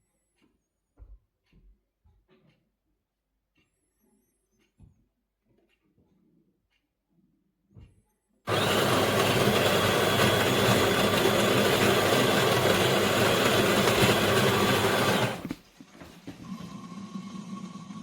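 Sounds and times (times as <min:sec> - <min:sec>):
coffee grinder grinding beans: 0:08.5 - 0:15.6.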